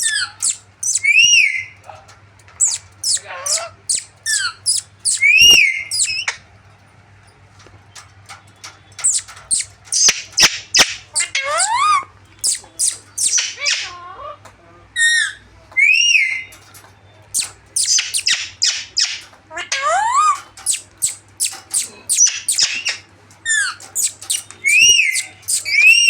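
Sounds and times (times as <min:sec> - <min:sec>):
parrot whistled calls: 0:00.0 - 0:01.7, 0:02.6 - 0:06.4, 0:09.0 - 0:13.9, 0:17.4 - 0:19.2, 0:20.1 - 0:23.0, 0:24.0 - 0:26.0
parrots squawking and screeching: 0:00.0 - 0:01.8, 0:02.6 - 0:06.4, 0:09.0 - 0:14.4, 0:15.0 - 0:16.5, 0:17.3 - 0:26.0.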